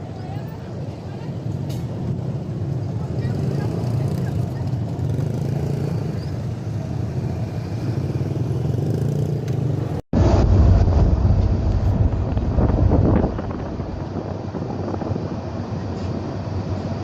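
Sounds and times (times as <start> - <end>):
deep engine rumble: 10.2 - 17.0
low engine drone with hum: 10.2 - 17.0.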